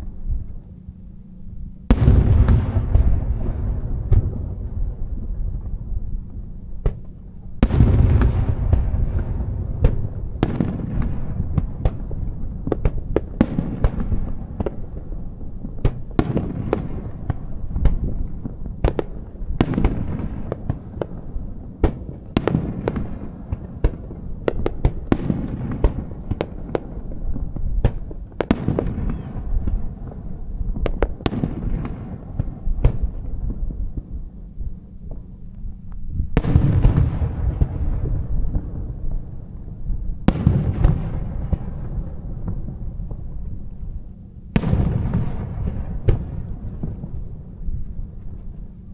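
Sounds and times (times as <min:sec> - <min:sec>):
low fireworks booms: 0:00.0 - 0:48.9.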